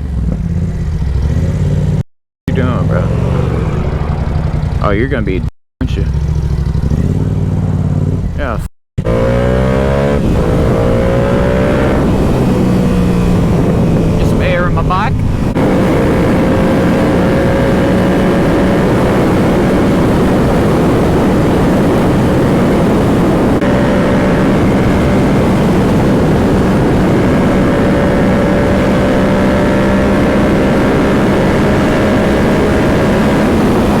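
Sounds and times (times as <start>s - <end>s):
motorcycle engine at speed: 0.0s - 34.0s
wind rushing: 7.5s - 34.0s.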